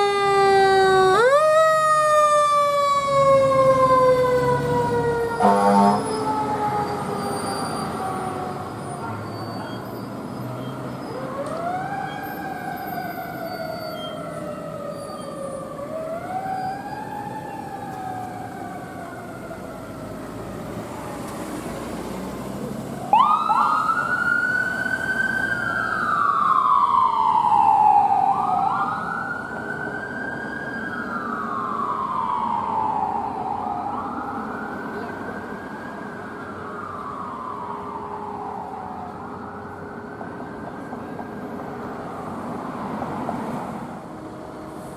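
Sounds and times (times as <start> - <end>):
higher-pitched siren wail: 0.0 - 21.3, 23.0 - 42.3
fire sirens wailing: 0.0 - 44.9
low traffic rumble: 0.0 - 44.9.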